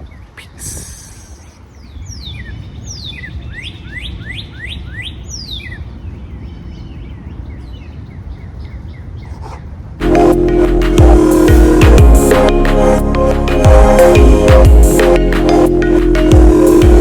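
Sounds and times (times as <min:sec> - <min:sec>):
birds singing whistled notes: 0:00.0 - 0:09.4
loud electronic music: 0:10.0 - 0:17.0.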